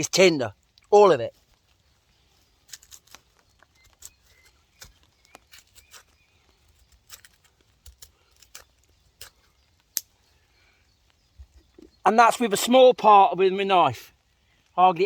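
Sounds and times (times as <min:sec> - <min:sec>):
knife scraping rotten wood: 0:02.6 - 0:09.5.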